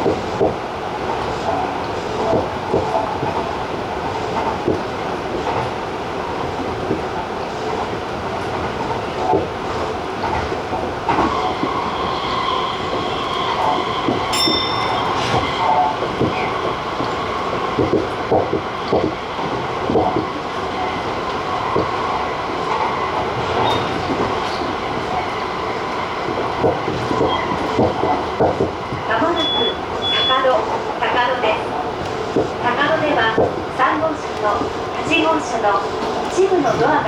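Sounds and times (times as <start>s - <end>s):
wheels clicking over rail joints: 12.9s - 37.0s.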